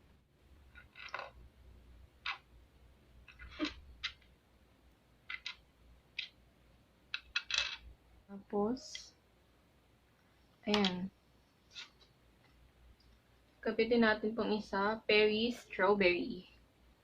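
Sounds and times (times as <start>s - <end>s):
plastic toy pieces clicking: 5.3s - 5.6s, 7.1s - 7.6s.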